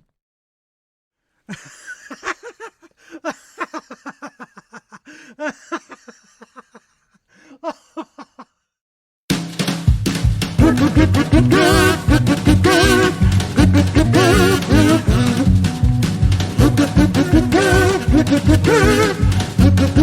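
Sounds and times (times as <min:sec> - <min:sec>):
music: 0:09.3 - 0:20.0
voice making short pitched sounds: 0:10.6 - 0:15.6, 0:16.6 - 0:20.0.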